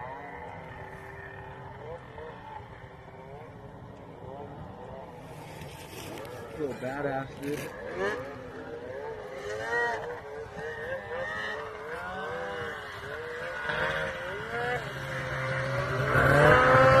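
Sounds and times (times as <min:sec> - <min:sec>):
snowmobile engine revving: 0:05.3 - 0:17.0.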